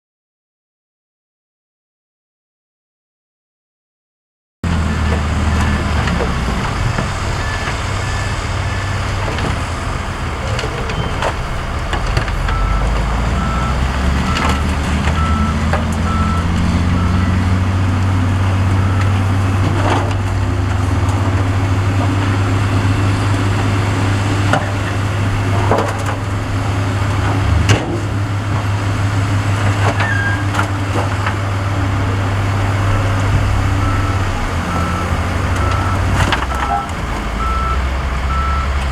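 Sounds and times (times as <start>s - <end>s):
heavy diesel machinery running: 4.6s - 38.9s
reversing alarm beeping: 4.7s - 24.4s, 32.8s - 38.8s.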